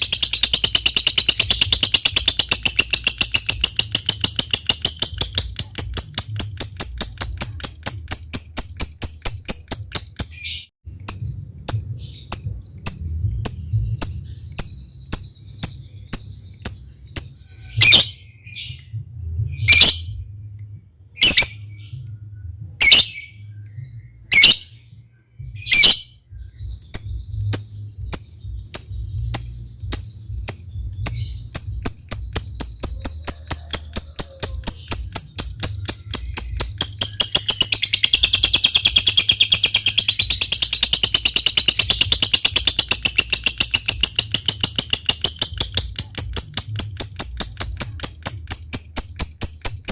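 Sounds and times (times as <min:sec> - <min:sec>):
lovebird ticking clicks: 0:00.0 - 0:10.4, 0:28.2 - 0:49.9
lovebird shrill chatter: 0:00.0 - 0:10.7, 0:28.8 - 0:49.9.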